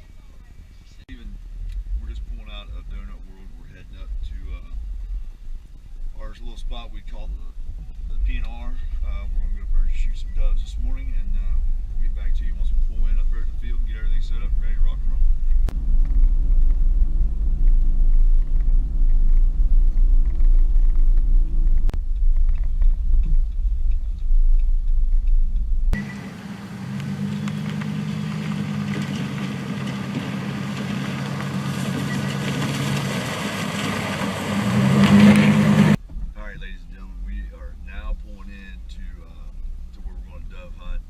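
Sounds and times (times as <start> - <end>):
deep vehicle rumble: 0.0 - 41.0
engine hum: 0.0 - 41.0
road hiss: 26.0 - 36.0.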